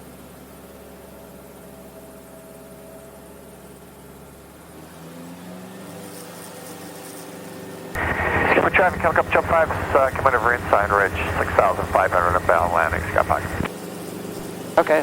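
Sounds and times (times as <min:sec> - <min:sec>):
helicopter engine and rotor humming: 0:08.0 - 0:15.0.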